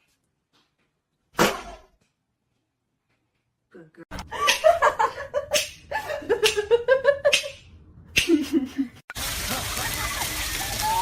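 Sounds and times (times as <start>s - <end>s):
person laughing: 8.2s - 10.4s.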